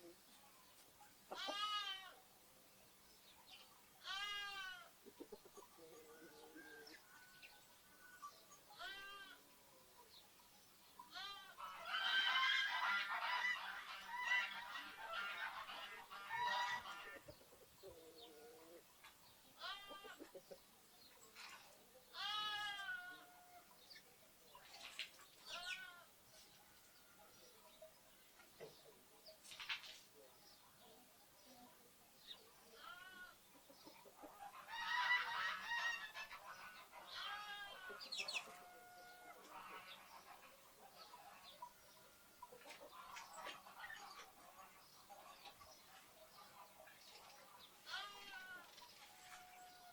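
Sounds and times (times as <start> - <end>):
farmyard animal call: 0.0 - 2.3, 3.5 - 29.2, 30.2 - 49.9
lambs bleating: 1.4 - 2.2, 4.0 - 4.9, 8.8 - 9.4, 11.1 - 12.2, 19.6 - 20.2, 22.2 - 23.4, 32.8 - 33.4, 37.2 - 37.9, 47.8 - 48.6
small birds chirping: 17.1 - 34.3, 36.2 - 49.9.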